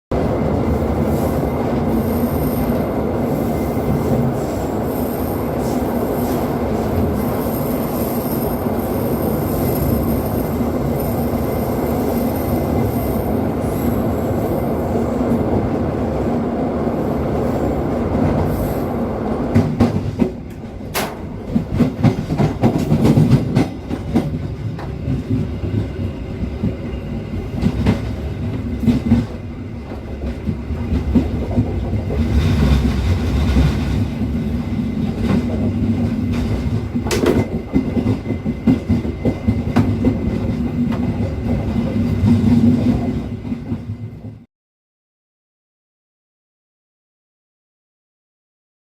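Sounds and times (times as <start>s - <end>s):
train rumbling on rails: 0.1s - 44.5s.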